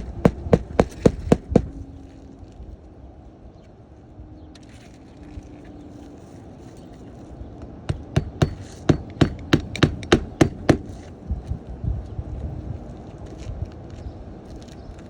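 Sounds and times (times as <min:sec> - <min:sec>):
hammer driving nails into shingles: 0:00.0 - 0:01.8, 0:07.9 - 0:11.1.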